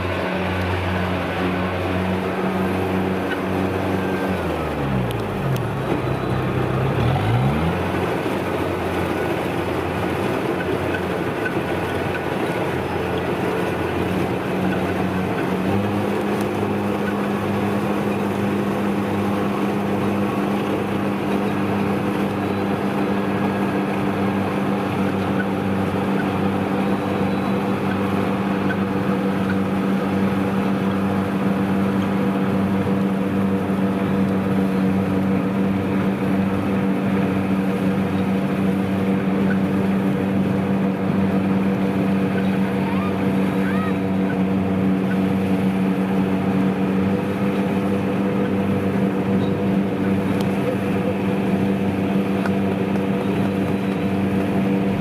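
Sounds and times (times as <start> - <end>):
combine harvester diesel engine: 0.0 - 55.0.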